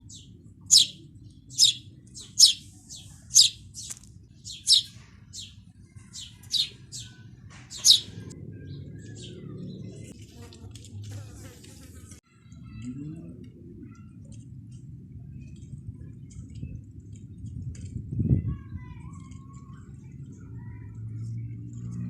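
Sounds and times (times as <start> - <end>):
bird chirping: 0.0 - 10.1.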